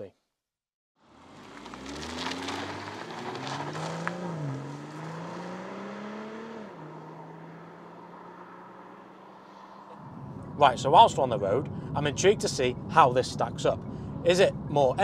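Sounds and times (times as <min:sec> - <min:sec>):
car engine accelerating hard: 0:01.1 - 0:11.7.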